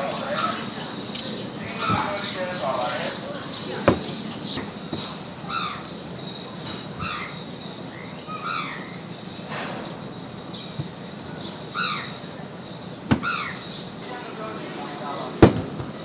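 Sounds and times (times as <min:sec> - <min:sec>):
bird calling in short arched calls: 0:13.2 - 0:13.8.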